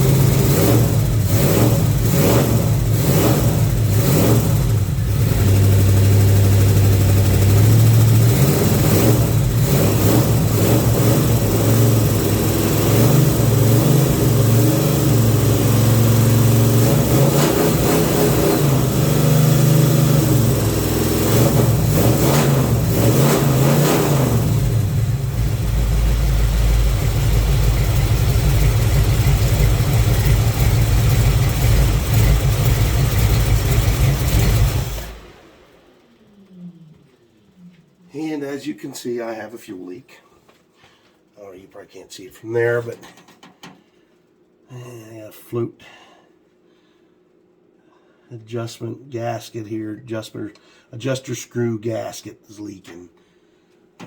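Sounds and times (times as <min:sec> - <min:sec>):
car engine revving and idling: 0:00.0 - 0:37.5.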